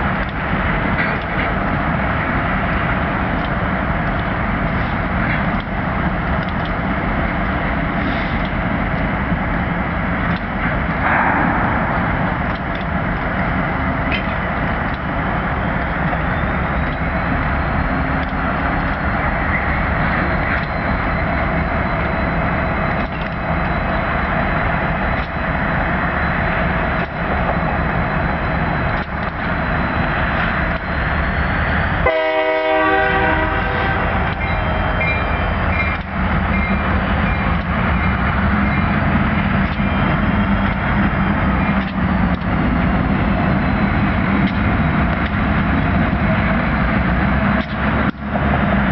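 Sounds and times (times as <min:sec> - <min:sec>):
diesel locomotive engine rumble: 0:00.0 - 0:48.9
locomotive horn: 0:32.0 - 0:34.4.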